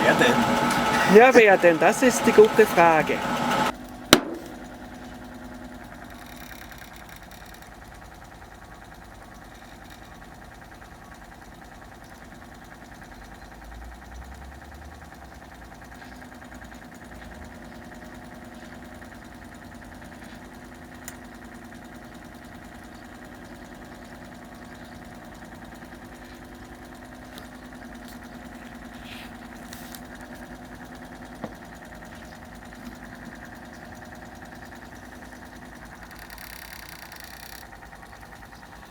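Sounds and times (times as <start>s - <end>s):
washing machine motor hum: 0.0s - 4.7s, 17.1s - 38.9s.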